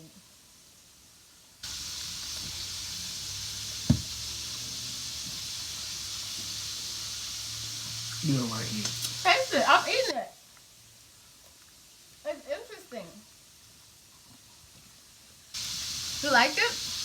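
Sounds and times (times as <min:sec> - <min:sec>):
steady hiss: 0:00.0 - 0:17.0
sharp knock: 0:03.9 - 0:04.2.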